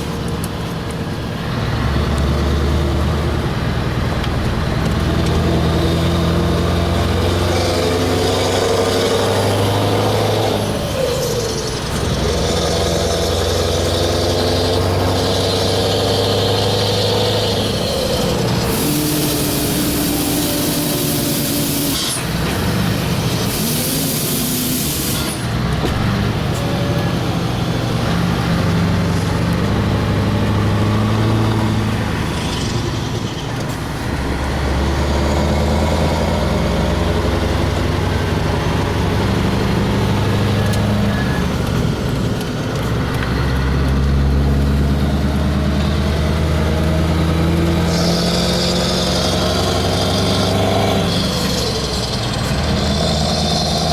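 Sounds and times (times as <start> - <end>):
truck engine running: 0.0 - 53.9
air hissing bursts: 15.8 - 25.6.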